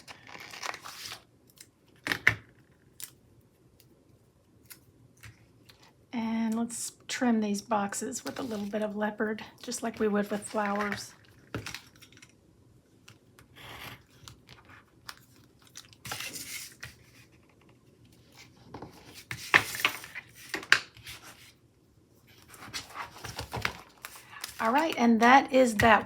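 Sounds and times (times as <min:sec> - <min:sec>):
stickers peeling with crinkly rustles: 0:08.2 - 0:12.4, 0:22.3 - 0:26.0.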